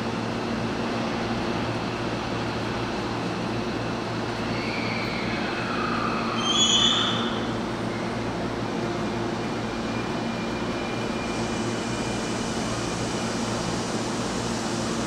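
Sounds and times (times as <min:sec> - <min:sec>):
electric train humming: 0:00.0 - 0:15.0.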